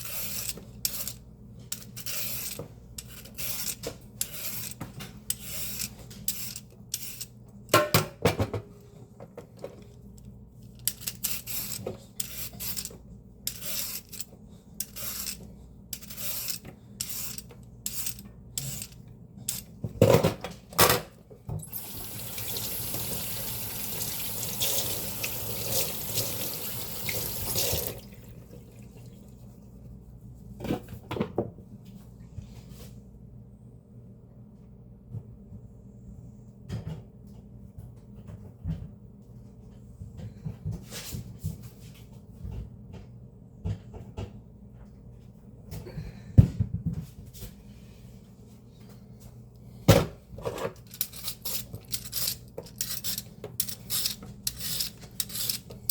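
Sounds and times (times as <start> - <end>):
fan humming: 0.0 - 29.2.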